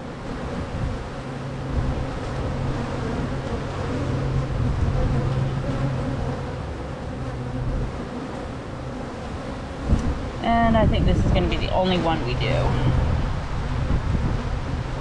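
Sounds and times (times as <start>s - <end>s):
honey bees buzzing: 0.0s - 15.0s
wind noise: 0.0s - 15.0s.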